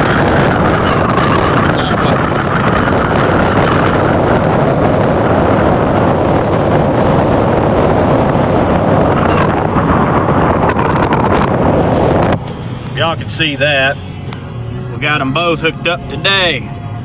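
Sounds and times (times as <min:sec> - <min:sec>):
wind on microphone: 0:00.0 - 0:13.0
engine running: 0:00.0 - 0:17.0.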